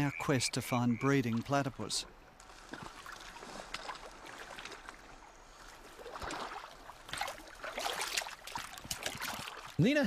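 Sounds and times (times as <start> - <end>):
water sloshing and splashing: 2.3 - 10.0
water dripping: 6.1 - 10.0.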